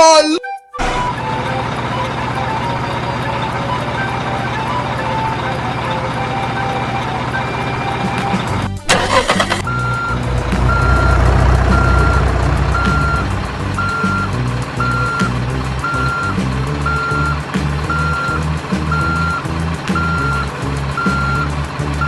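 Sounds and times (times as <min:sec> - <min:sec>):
truck engine rumbling: 0:00.8 - 0:22.0
reversing alarm beeping: 0:09.1 - 0:19.4, 0:21.0 - 0:21.5.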